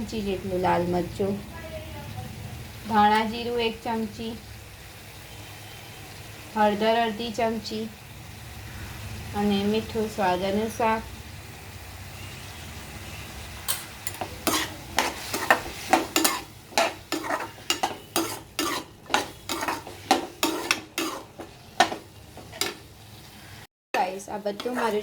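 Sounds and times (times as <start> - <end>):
soft sizzle of frying: 0.0 - 25.0
spoon stirring and scraping in a pan: 13.6 - 25.0.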